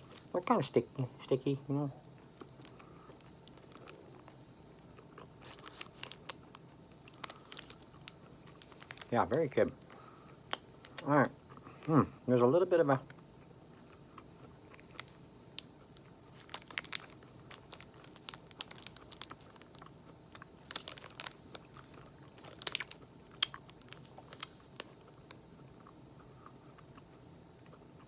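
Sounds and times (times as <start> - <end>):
chewing granola bar: 2.2 - 12.2, 12.9 - 28.0.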